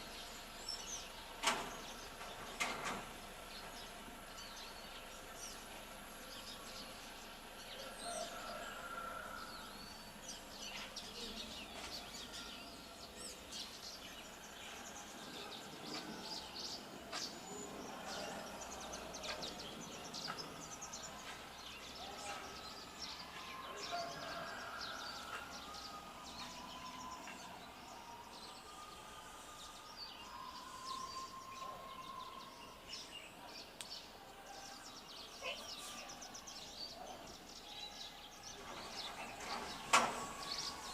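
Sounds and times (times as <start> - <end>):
birds chirping: 0.0 - 40.9
outdoor background hiss: 0.0 - 40.9.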